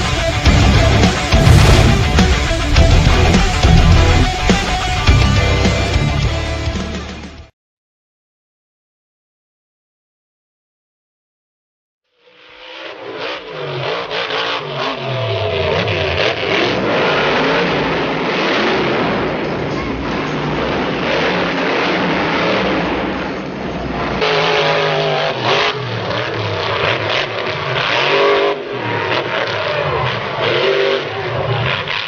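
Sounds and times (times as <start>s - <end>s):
truck engine revving hard: 0.0s - 7.1s, 13.2s - 32.0s.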